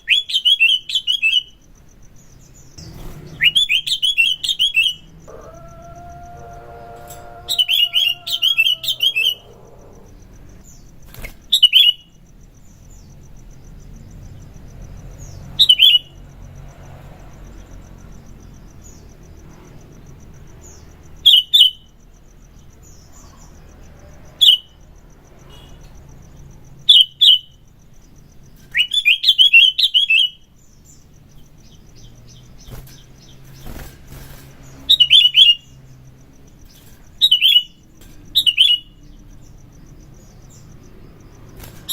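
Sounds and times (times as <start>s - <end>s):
bulbul singing chirpy phrases: 2.8s - 10.6s.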